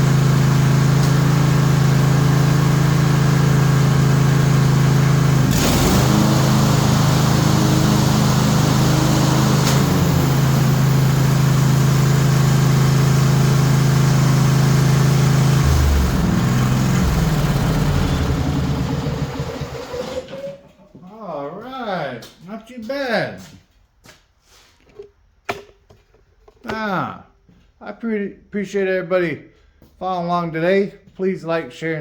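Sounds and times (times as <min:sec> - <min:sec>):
lawn tractor engine running: 0:00.0 - 0:20.8.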